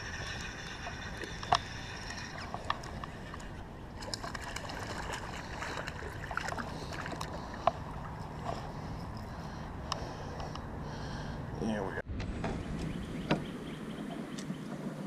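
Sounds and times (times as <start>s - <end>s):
water sloshing against kayak hull: 0.0s - 10.5s.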